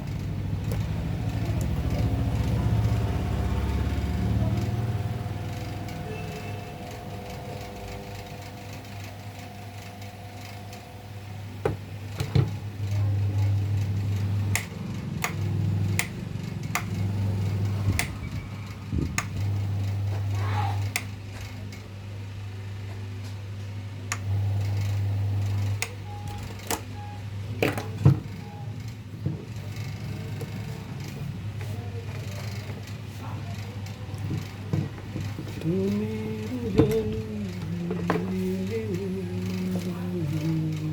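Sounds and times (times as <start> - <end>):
fan motor humming: 0.0 - 40.9
sharp clicks: 14.5 - 18.4.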